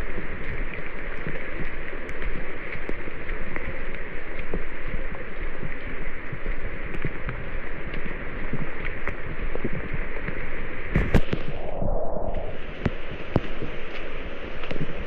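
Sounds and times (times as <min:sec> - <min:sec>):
rain tapping: 0:00.0 - 0:11.5, 0:12.5 - 0:15.0
rushing water: 0:00.0 - 0:15.0.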